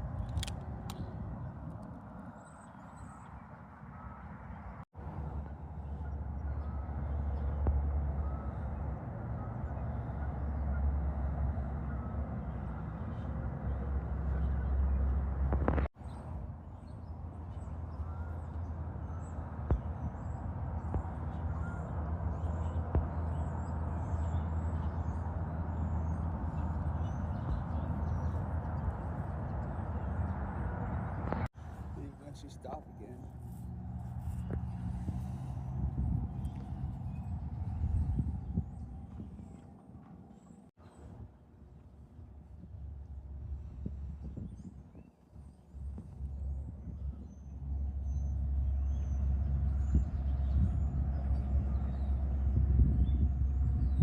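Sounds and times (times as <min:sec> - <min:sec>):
highway traffic rumble: 0:00.0 - 0:54.0.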